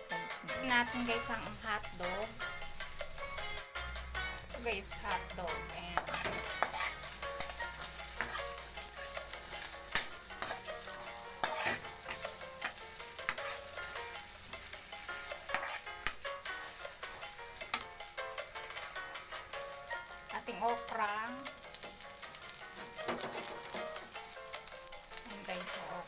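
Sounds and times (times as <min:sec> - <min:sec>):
food sizzling in hot oil: 0:00.0 - 0:26.0
metal spatula scraping pan: 0:00.6 - 0:19.6.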